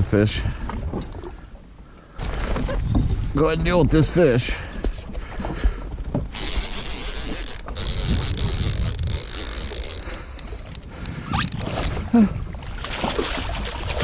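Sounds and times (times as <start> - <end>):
fishing reel whirring: 6.3 - 12.0.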